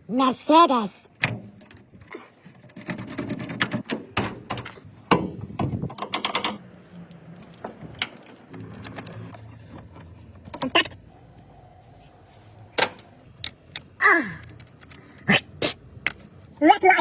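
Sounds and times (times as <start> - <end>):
clicks knocks and light rattles: 1.2 - 11.0.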